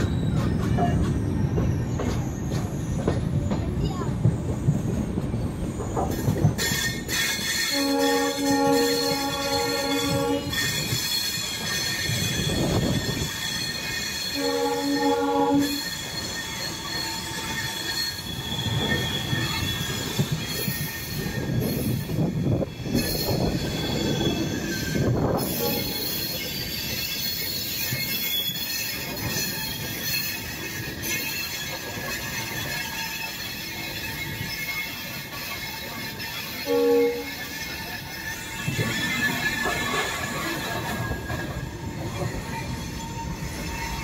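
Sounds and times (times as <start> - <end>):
train rumble: 0.0 - 44.0
train wheel squeal: 0.0 - 44.0
train horn blast: 7.6 - 10.7, 14.3 - 15.8, 25.4 - 26.1, 36.6 - 37.4.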